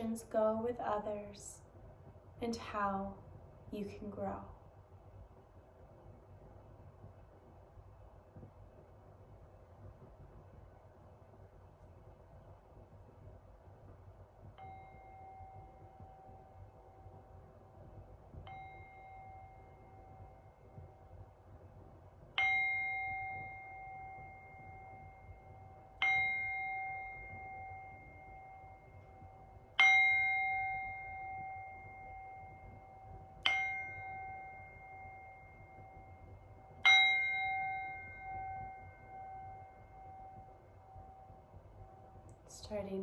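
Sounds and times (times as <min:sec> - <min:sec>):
meditation bell ringing: 0:14.6 - 0:17.8, 0:18.4 - 0:21.3, 0:22.4 - 0:42.3.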